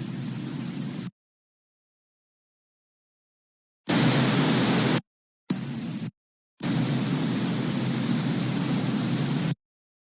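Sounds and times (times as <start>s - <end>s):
static hiss: 3.9s - 5.0s, 6.6s - 9.6s.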